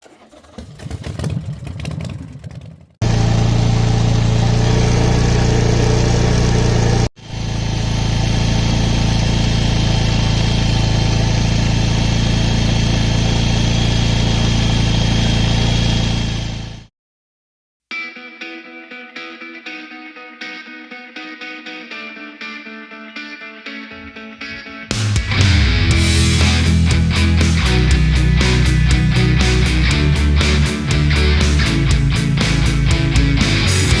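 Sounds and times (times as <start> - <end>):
motorcycle engine running: 0.6 - 16.9, 24.9 - 34.0.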